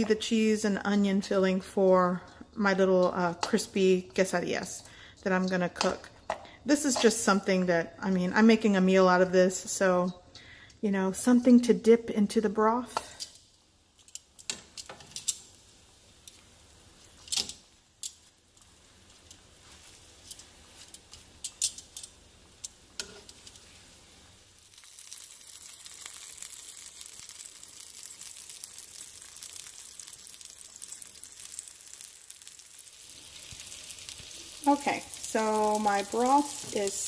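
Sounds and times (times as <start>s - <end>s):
tortillas sizzling in oil: 0.0s - 7.5s, 12.8s - 37.0s
metal tongs clicking on pan: 5.4s - 7.1s, 14.0s - 15.5s, 17.2s - 19.4s, 20.2s - 23.6s.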